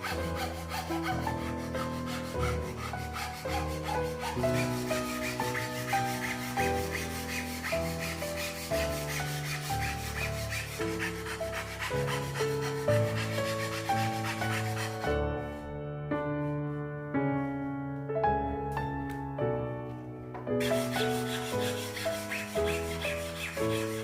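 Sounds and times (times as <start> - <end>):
hand tool rubbing on wood: 0.0 - 15.2, 20.6 - 24.0
piano music: 0.0 - 24.0.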